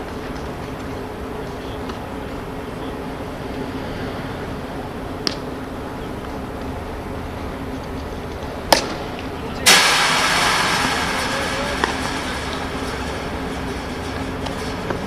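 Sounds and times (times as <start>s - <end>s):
outdoor background noise: 0.0s - 15.0s
loud rushing noise: 9.0s - 15.0s
sharp knocks: 9.7s - 15.0s.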